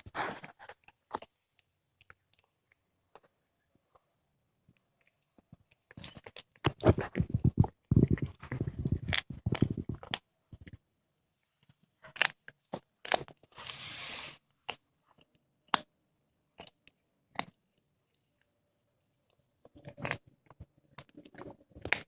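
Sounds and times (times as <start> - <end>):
cat crunching bones: 5.0 - 10.7, 12.1 - 13.3.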